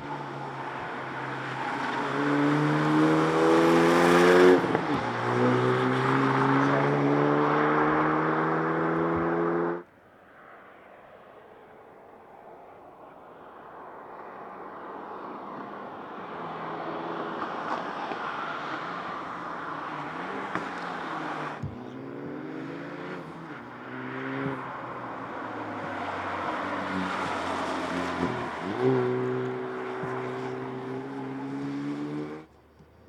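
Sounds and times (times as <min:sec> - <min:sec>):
car engine accelerating hard: 0:00.0 - 0:09.8, 0:16.7 - 0:32.8.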